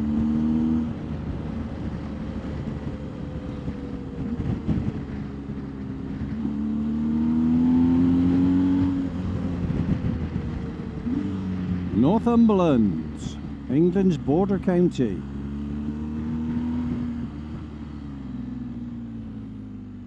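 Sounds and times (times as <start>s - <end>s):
road and wind noise: 0.0s - 20.0s
motorcycle engine accelerating: 6.0s - 14.6s, 15.2s - 20.0s.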